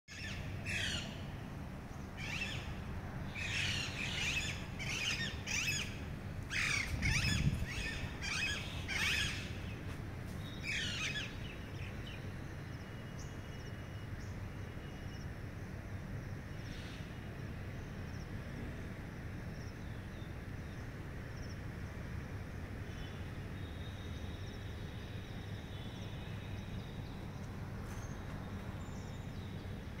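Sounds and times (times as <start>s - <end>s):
birds squawking: 6.5s - 9.6s.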